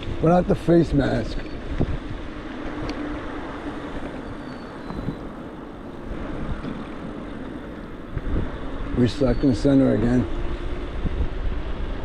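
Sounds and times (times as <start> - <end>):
wind buffeting microphone: 0.0 - 12.0
tyres rolling on pavement: 2.2 - 9.2.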